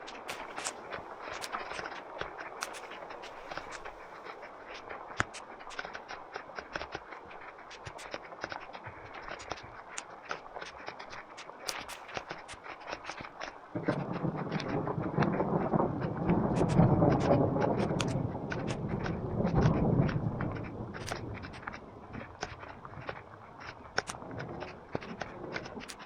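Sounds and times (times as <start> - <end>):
thunder rumble: 0.0 - 8.1, 13.7 - 26.0
heavy rain falling: 0.0 - 26.0.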